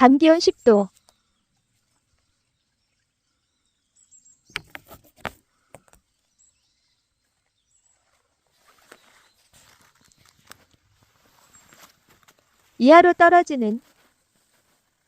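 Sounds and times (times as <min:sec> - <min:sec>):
leaves and twigs crunching underfoot: 0:07.2 - 0:15.0.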